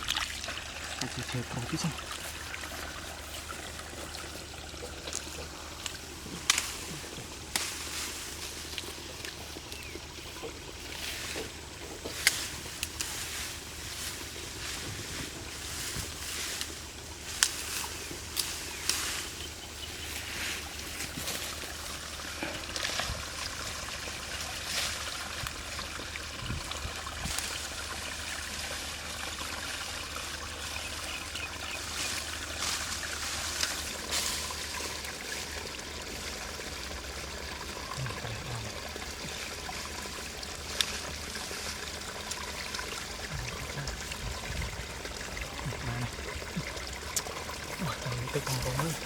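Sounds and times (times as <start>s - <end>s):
sharp water splashes: 0.0s - 49.0s
trickling water: 0.0s - 49.0s.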